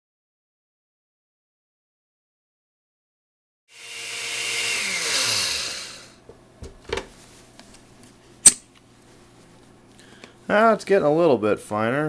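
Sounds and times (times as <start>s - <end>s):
blender motor winding down: 3.7s - 6.2s.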